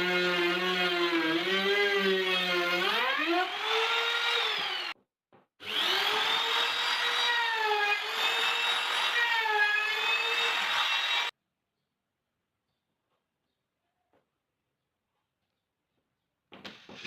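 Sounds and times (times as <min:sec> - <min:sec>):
power tool motor whining: 0:05.6 - 0:11.3.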